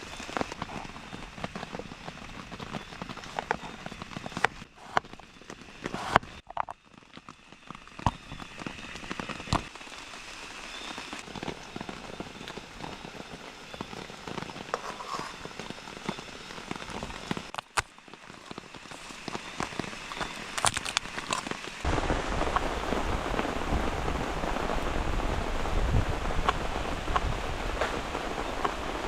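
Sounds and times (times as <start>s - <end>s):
heavy rain pattering: 0.0s - 29.0s
wind rumble on microphone: 19.2s - 29.0s.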